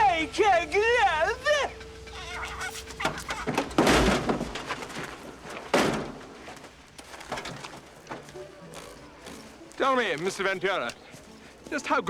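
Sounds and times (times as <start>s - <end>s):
heavy thuds: 0.0s - 8.3s
light knocks and clatter: 1.8s - 11.9s.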